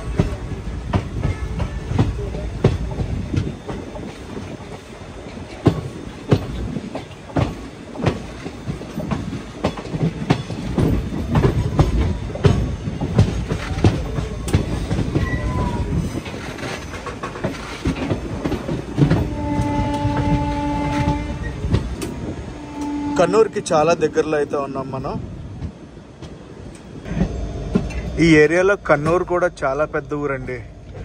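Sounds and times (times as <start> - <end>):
wheels clacking over rail joints: 0.0 - 24.6, 25.2 - 31.0
train rumbling at speed: 0.0 - 31.0
train horn blast: 19.1 - 21.8, 22.4 - 23.6.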